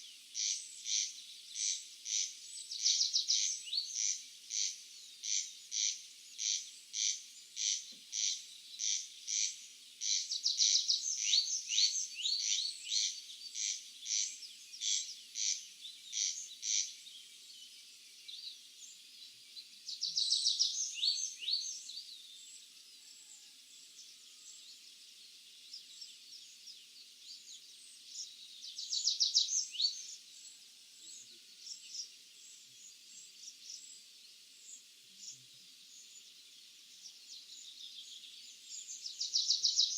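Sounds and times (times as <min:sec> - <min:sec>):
bird calls: 0:00.0 - 0:17.0.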